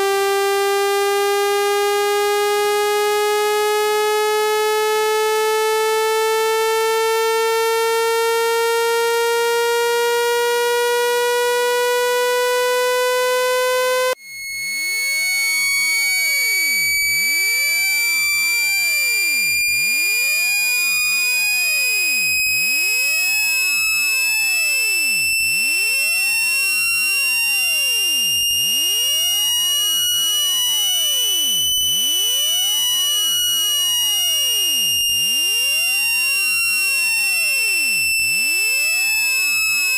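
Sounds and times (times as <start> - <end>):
buzzy electronic tone rising: 0.0 - 23.3.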